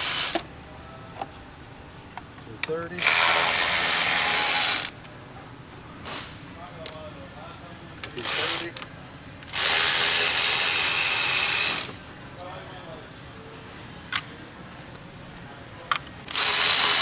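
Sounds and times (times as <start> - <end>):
electric ratchet spinning: 0.0 - 0.4, 3.0 - 5.0, 8.2 - 8.8, 9.5 - 12.0, 16.3 - 17.0.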